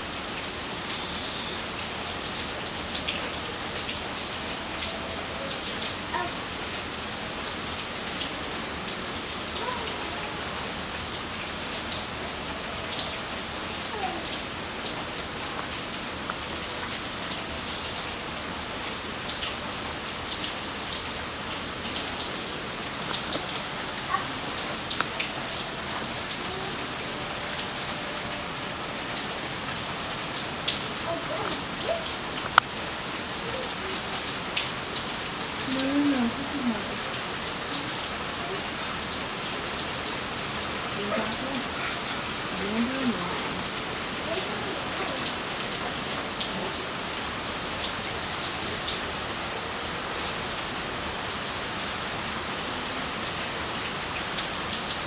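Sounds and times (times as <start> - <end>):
steady rain hissing: 0.0 - 55.0
raindrops ticking: 30.6 - 32.9.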